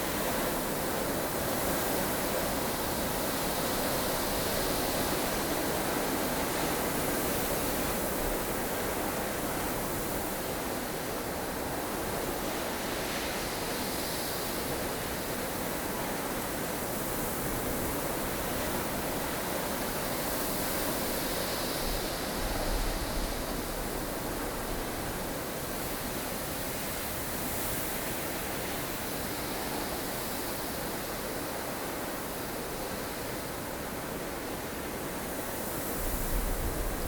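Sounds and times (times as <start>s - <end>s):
snowstorm wind blowing: 35.8s - 37.0s.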